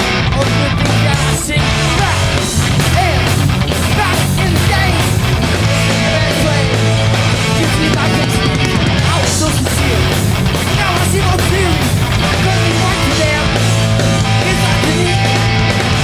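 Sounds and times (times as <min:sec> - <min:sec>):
bass guitar: 0:00.0 - 0:16.0
distorted electric guitars: 0:00.0 - 0:16.0
drums: 0:00.0 - 0:16.0.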